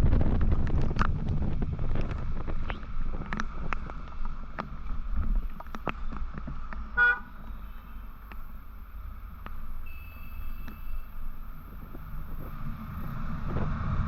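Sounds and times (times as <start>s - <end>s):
road and wind rumble: 0.0s - 14.0s
vehicle horn honk: 7.0s - 8.0s, 9.8s - 11.1s.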